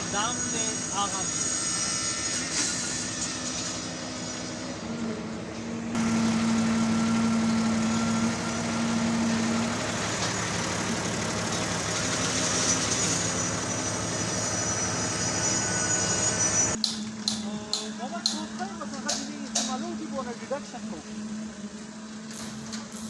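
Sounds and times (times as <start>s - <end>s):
heavy machinery engine running: 5.2s - 16.8s, 22.3s - 23.0s.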